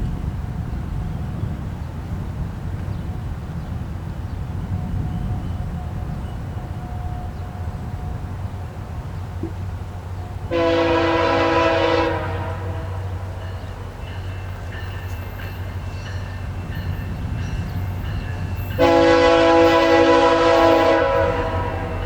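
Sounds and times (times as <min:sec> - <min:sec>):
train rumbling: 0:00.0 - 0:22.0
locomotive air horn blasts: 0:10.5 - 0:13.3, 0:18.8 - 0:22.0.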